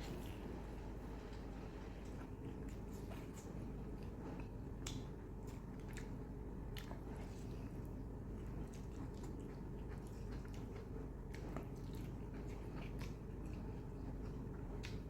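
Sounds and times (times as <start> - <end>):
steady low hum: 0.0 - 15.0
wet chewing and smacking: 0.0 - 15.0.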